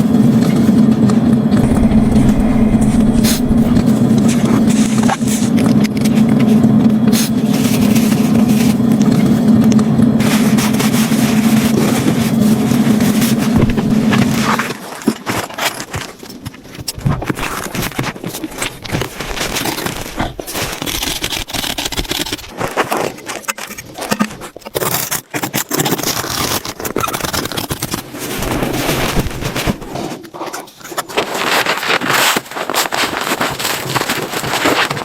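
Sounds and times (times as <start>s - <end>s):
scraping and crackling: 1.6s - 6.6s, 10.2s - 30.3s
steady low hum: 1.6s - 14.6s.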